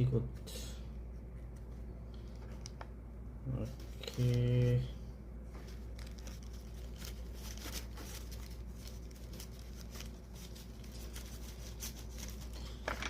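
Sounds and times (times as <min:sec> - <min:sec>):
steady low hum: 0:00.0 - 0:13.0
packaging rustling and crinkling: 0:03.7 - 0:04.8, 0:05.6 - 0:13.0.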